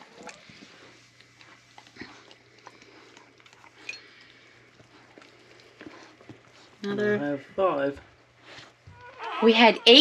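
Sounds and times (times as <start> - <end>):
puppies suckling and licking: 0.0 - 10.0
puppy squeak: 9.0 - 10.0.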